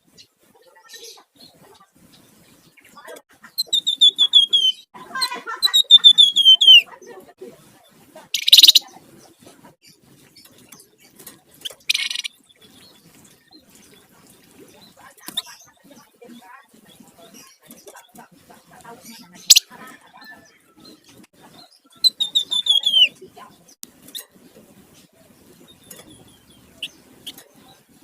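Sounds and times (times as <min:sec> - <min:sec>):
bird harsh chatter: 0:00.2 - 0:28.0
bird harsh rasping calls: 0:03.0 - 0:06.9, 0:08.4 - 0:08.9, 0:11.5 - 0:12.4, 0:21.7 - 0:23.2
songbird whistled notes: 0:03.6 - 0:04.9, 0:05.8 - 0:06.9, 0:22.0 - 0:23.2.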